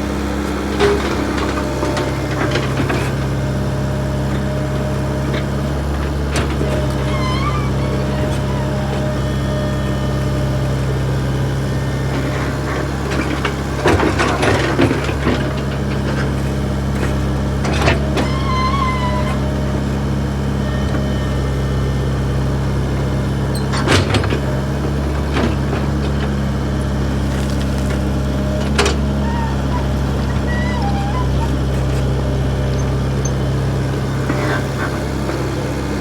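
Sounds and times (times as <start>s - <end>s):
backhoe diesel engine: 0.0s - 36.0s
high squeal: 6.8s - 10.5s, 20.5s - 21.8s.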